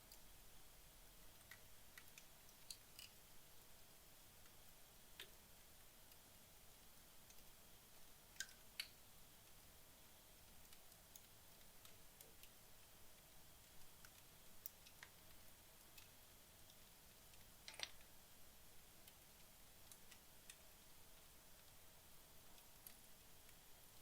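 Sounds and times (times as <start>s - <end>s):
logs crackling in fireplace: 0.0s - 24.0s.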